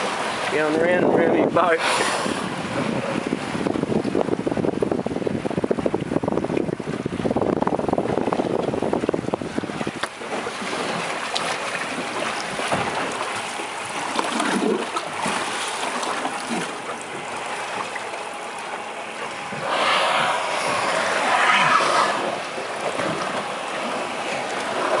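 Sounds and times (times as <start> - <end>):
wind buffeting microphone: 0.0 - 11.2, 16.3 - 25.0
water splashing around a boat: 0.0 - 25.0
rushing hiss: 19.6 - 22.4.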